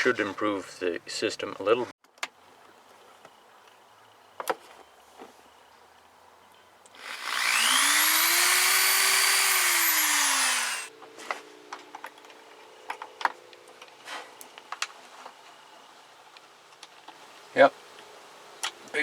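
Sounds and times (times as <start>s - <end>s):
power tool motor whining: 6.9s - 10.9s.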